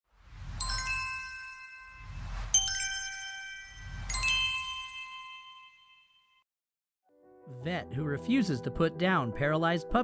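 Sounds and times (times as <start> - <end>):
whoosh with low rumble: 0.1 - 4.8
bell-like dings: 0.6 - 6.4.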